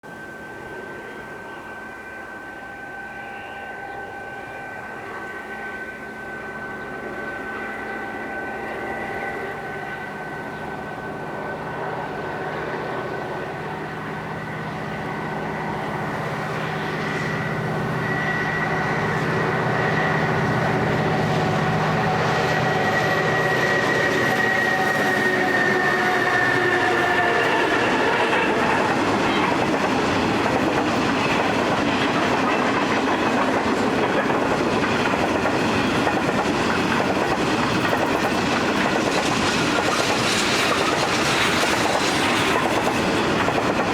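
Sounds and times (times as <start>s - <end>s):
diesel locomotive engines droning: 0.0s - 43.9s
train wheels clickety-clack: 14.8s - 43.9s.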